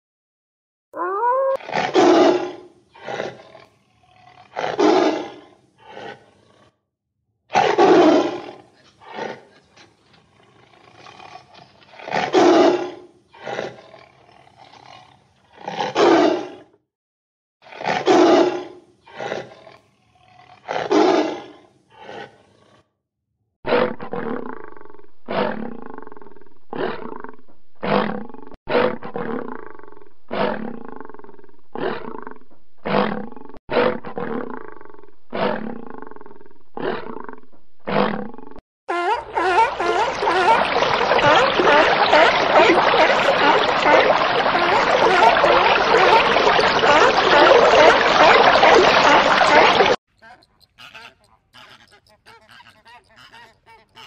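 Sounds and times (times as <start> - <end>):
tiger roaring: 1.6 - 6.8, 7.5 - 9.6, 17.7 - 22.9, 23.7 - 38.6.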